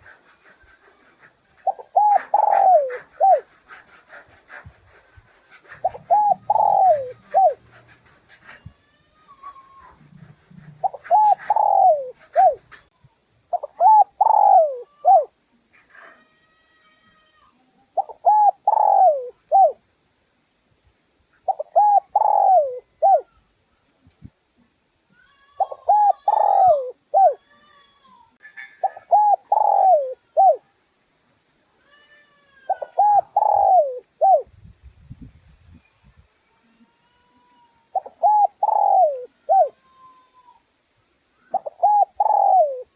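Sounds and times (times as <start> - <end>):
dove cooing: 0.0 - 8.7, 9.4 - 12.9, 13.5 - 15.3, 18.0 - 19.8, 21.4 - 23.4, 25.5 - 27.4, 28.6 - 30.6, 32.7 - 34.5, 37.9 - 39.8, 41.5 - 42.9.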